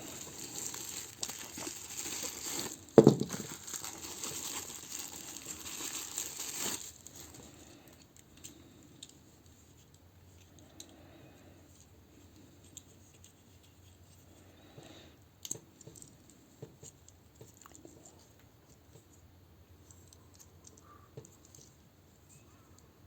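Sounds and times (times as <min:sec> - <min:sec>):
packaging being handled: 0:00.0 - 0:07.4.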